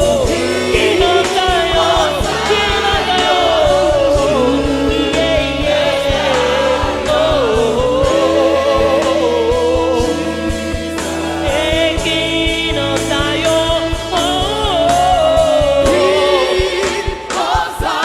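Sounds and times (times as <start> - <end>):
bass line: 0.0 - 18.0
drum hits: 0.0 - 18.0
voices singing gospel: 0.0 - 18.0.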